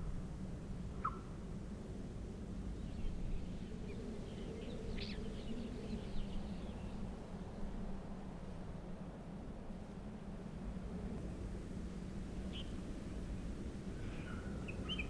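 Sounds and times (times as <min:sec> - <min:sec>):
bird chirping: 0:14.2 - 0:15.0.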